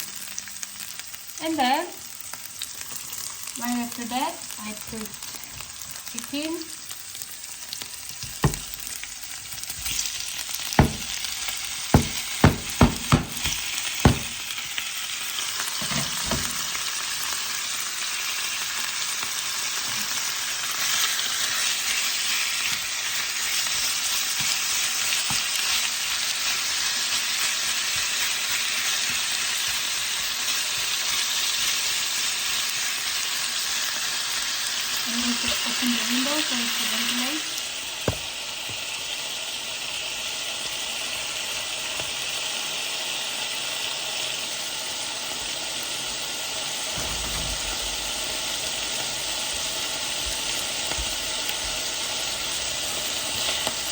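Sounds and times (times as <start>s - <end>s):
chicken sizzling in a pan: 0.0s - 53.9s
sharp knocks: 8.4s - 8.8s, 10.8s - 11.2s, 12.0s - 14.4s.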